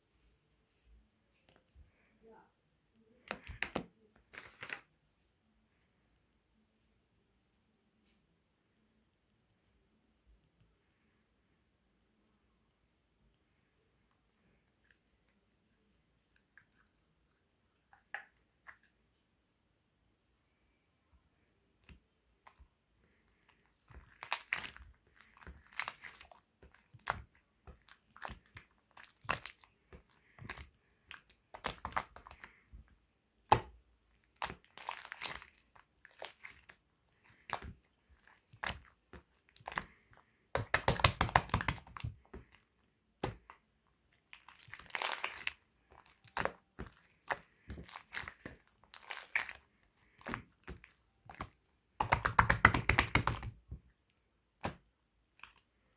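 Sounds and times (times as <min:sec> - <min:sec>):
slime squished by hand: 0:03.2 - 0:04.9, 0:21.8 - 0:55.9.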